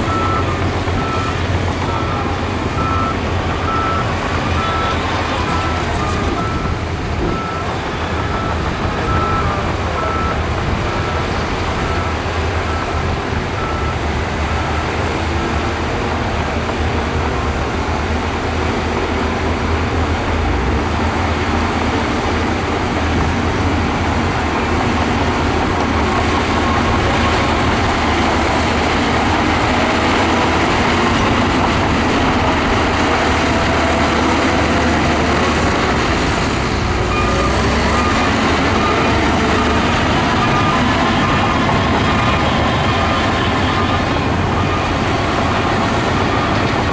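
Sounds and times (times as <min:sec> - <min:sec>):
reversing alarm beeping: 0:00.0 - 0:16.2, 0:21.9 - 0:46.9
heavy machinery diesel engines: 0:00.0 - 0:46.9.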